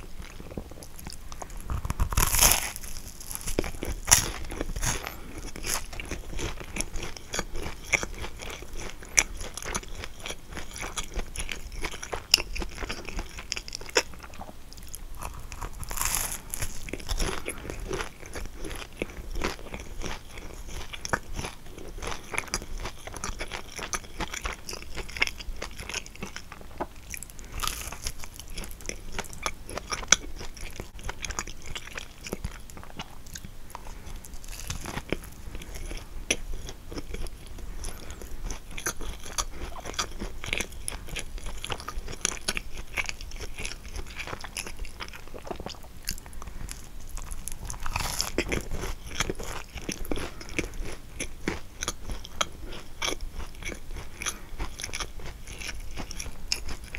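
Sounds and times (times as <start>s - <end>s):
pastry crust crunching: 0.2s - 56.9s.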